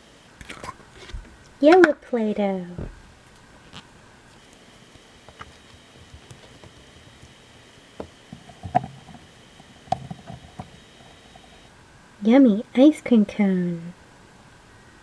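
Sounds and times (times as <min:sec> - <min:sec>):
faint steady hiss: 0:00.0 - 0:00.4, 0:04.3 - 0:11.7.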